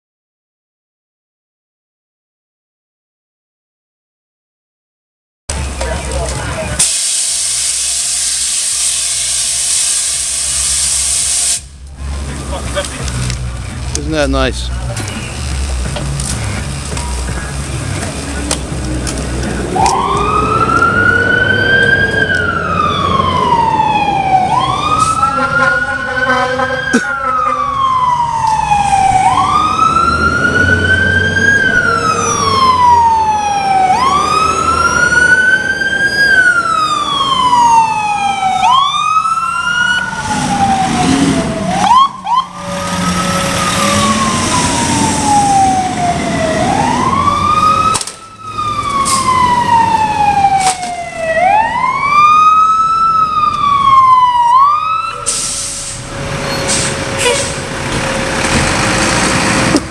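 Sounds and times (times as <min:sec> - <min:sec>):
fire engine siren wailing: 0:05.5 - 0:59.9
horn: 0:25.2 - 0:27.8.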